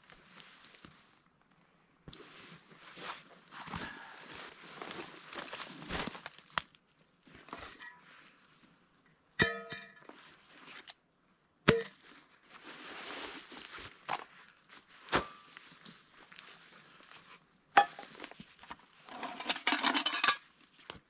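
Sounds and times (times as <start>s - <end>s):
rustling of gear: 2.2s - 6.4s.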